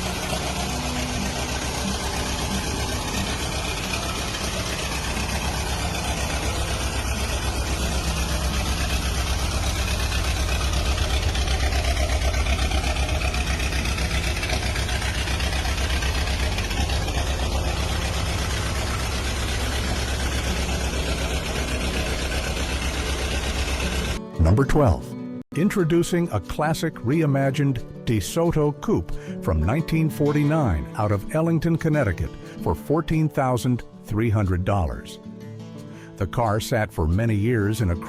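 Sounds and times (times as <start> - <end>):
old car engine running: 0.0 - 25.0.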